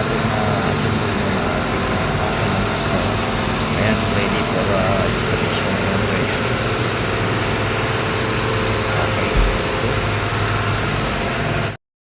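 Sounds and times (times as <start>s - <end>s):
low thump: 9.3s - 9.7s.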